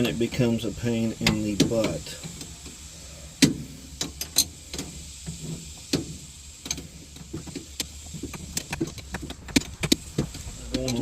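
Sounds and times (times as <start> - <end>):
steady low hum: 6.3 - 11.0.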